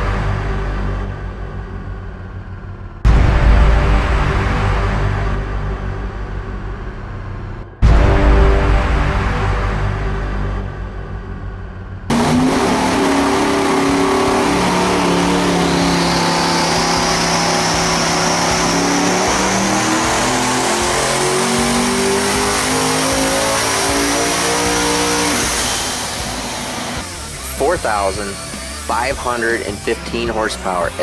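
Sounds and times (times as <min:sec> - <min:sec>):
rising whine: 0:00.0 - 0:31.0
engine full-throttle pull: 0:12.1 - 0:31.0.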